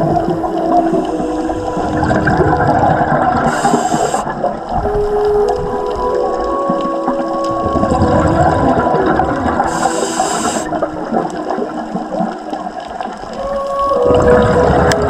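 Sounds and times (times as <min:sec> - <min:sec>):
bubbling exhaled air: 0:00.0 - 0:06.3, 0:07.5 - 0:13.0
faint humming tones: 0:00.0 - 0:15.0
diver inhaling through regulator: 0:00.5 - 0:02.2, 0:03.4 - 0:04.4, 0:09.7 - 0:10.8.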